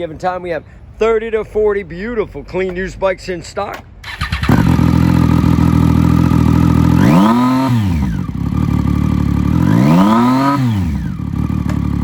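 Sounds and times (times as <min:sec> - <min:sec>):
motorcycle engine idling and revving: 0:04.0 - 0:12.0.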